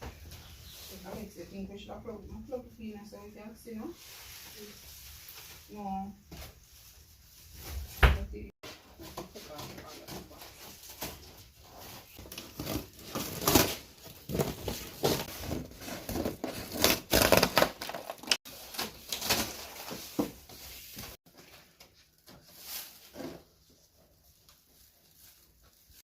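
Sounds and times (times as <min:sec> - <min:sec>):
packing material crinkling and tearing: 0:10.0 - 0:21.2.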